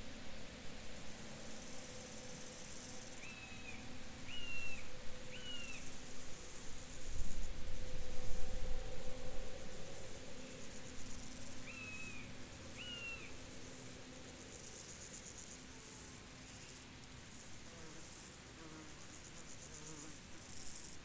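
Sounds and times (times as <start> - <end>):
insects chirping in trills: 0.5 - 21.0.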